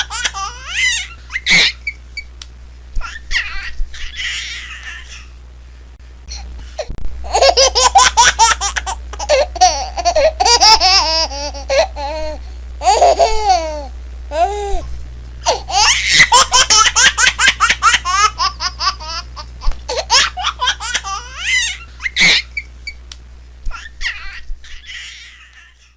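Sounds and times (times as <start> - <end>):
baby giggling: 0.0 - 2.0, 3.0 - 5.3, 7.3 - 14.8, 15.5 - 22.7.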